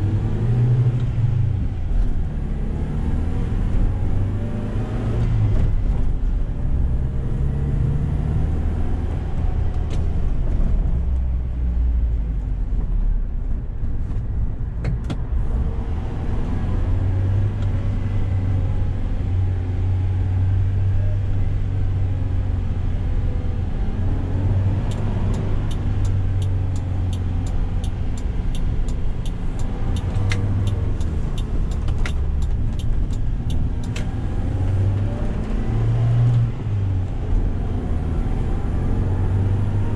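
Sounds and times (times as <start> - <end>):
road noise: 0.0 - 39.9
regular ticking: 25.3 - 34.0.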